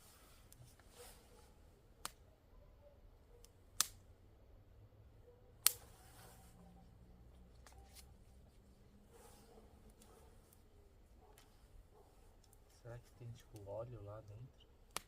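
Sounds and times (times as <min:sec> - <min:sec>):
sharp snaps: 0:02.0 - 0:02.2, 0:03.4 - 0:04.0, 0:05.6 - 0:06.0.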